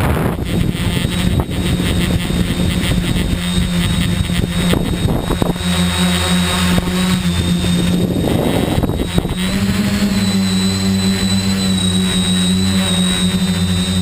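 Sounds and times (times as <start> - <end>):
drone motors and propellers buzzing: 0.0 - 14.0.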